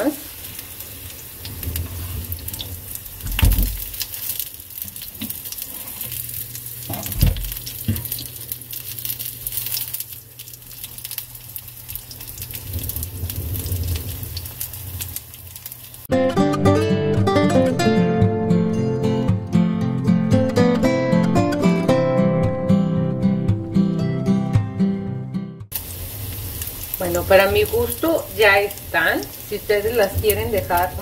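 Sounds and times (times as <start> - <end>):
patties sizzling in a frying pan: 0.0 - 16.1, 25.7 - 31.0
acoustic guitar music: 16.1 - 25.7.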